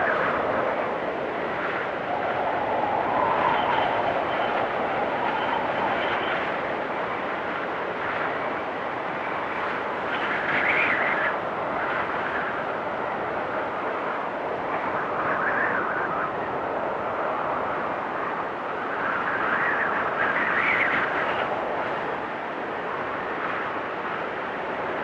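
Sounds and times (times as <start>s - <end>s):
storm wind whistling: 0.0s - 25.0s.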